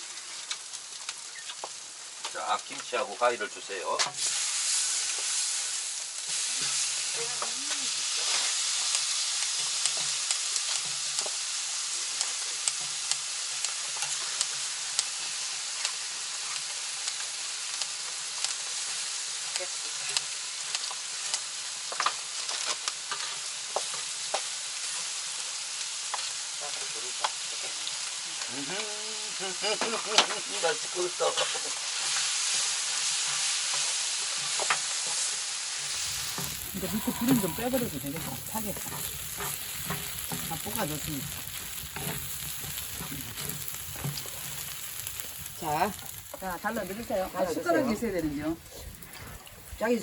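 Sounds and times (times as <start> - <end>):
food sizzling on griddle: 0.0 - 50.0.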